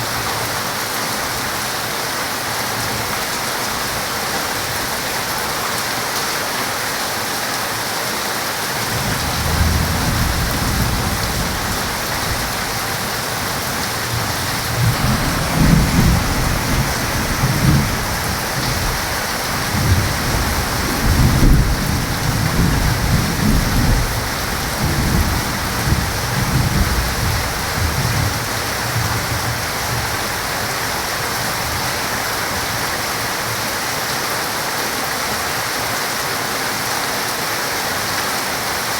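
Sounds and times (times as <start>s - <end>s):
heavy rain falling: 0.0s - 38.9s
thunder rumbling: 8.8s - 31.9s.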